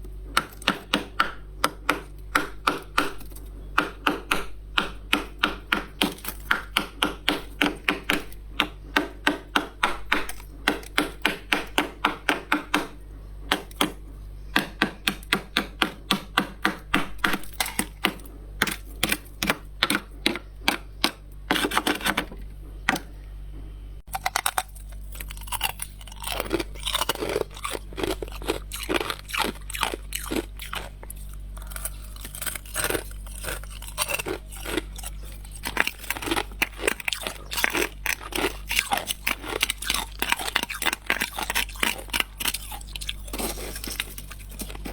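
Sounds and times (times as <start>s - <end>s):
frost crunching: 24.1s - 44.9s
frost being scraped: 31.6s - 44.9s.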